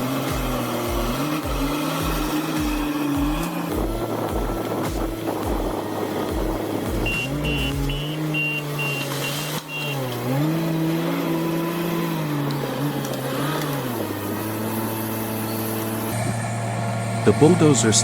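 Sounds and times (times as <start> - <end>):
bulldozer engine revving: 0.0 - 18.0
reversing alarm beeping: 7.0 - 10.1.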